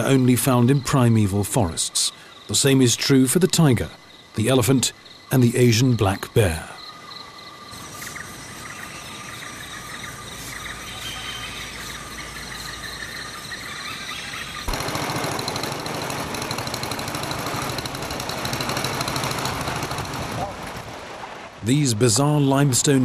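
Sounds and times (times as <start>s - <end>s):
insects trilling: 0.0s - 19.2s.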